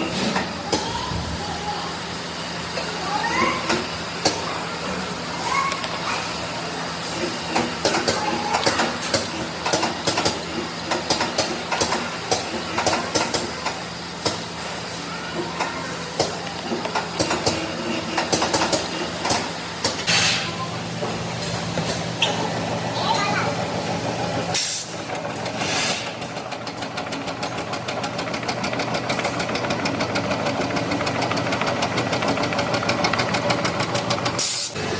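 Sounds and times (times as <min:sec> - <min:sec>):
machinery hum and hiss: 0:00.0 - 0:26.9, 0:32.7 - 0:34.9
sharp machine clicks and clanks: 0:07.5 - 0:14.5, 0:16.2 - 0:20.4.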